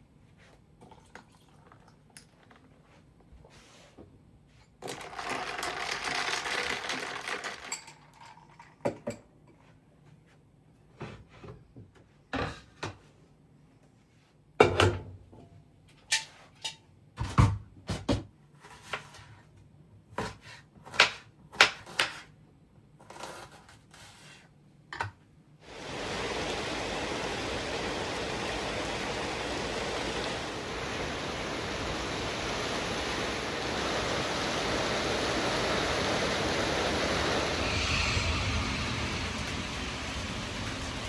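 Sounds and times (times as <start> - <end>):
tap water running: 25.6 - 41.0.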